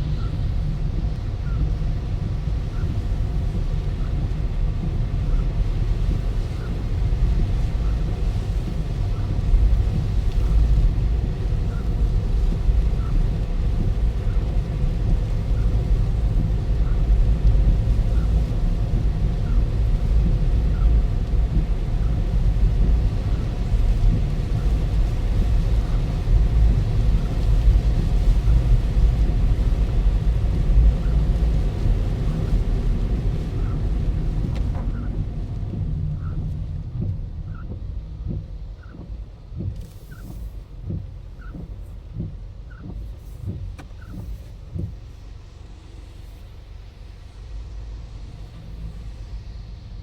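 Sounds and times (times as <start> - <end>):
car road and wind noise: 0.0 - 50.0
faint light ticks: 1.4 - 29.8, 30.5 - 45.0.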